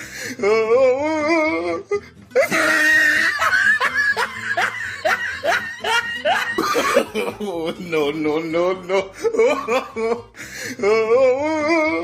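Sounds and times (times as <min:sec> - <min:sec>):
wavering cry: 0:00.4 - 0:07.1
person laughing in yelps: 0:00.4 - 0:12.0.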